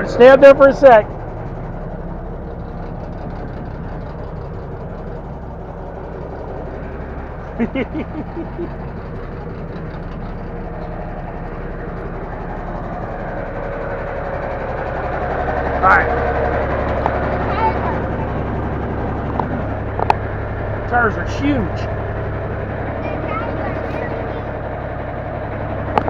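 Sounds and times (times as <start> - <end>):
diesel truck idling: 0.0 - 26.0.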